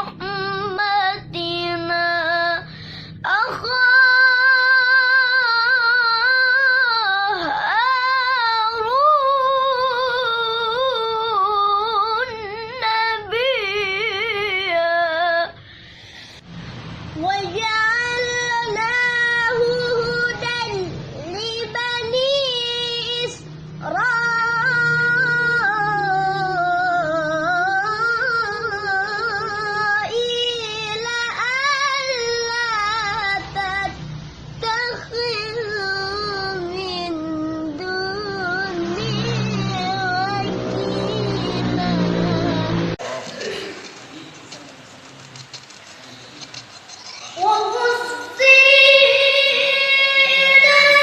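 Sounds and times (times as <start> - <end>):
boy reciting melodically: 0.0 - 15.6, 17.2 - 34.0, 34.6 - 43.2, 47.3 - 51.0.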